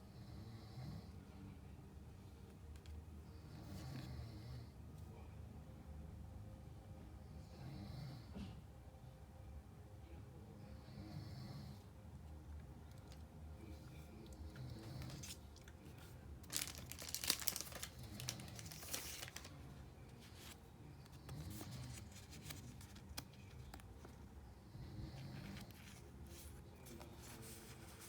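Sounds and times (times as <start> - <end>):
foil wrapper crinkling and tearing: 16.4 - 19.6.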